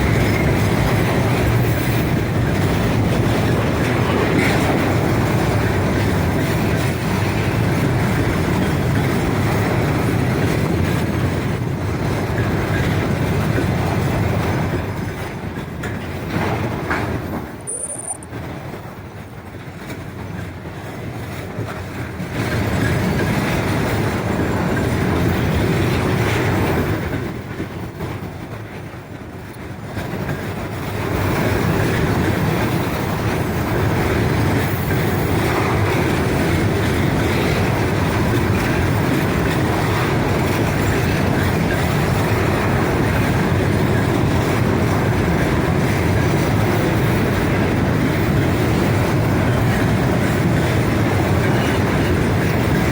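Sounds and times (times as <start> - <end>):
freight train wheels clattering: 0.0 - 52.9.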